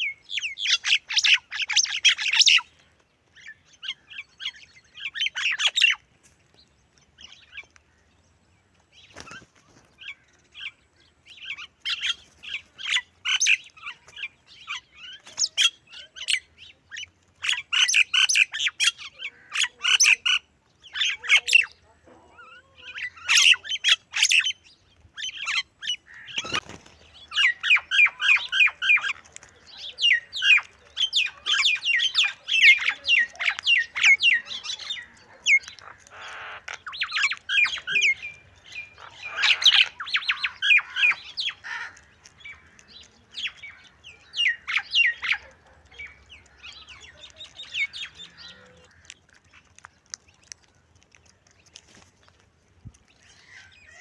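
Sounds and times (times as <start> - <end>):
birds chirping and chattering: 0.0 - 54.0
crows squawking: 17.5 - 20.4, 25.3 - 26.6, 27.3 - 49.4.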